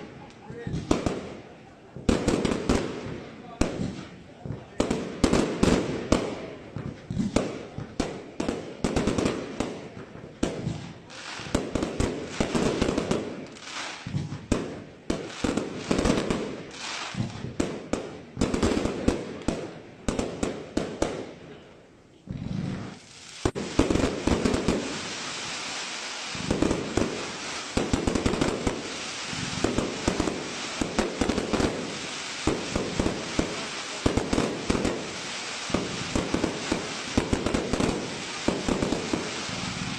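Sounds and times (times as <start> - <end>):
rapid firework reports: 0.0 - 21.2, 22.3 - 39.9
hissing crackle: 10.7 - 17.6, 22.3 - 39.9.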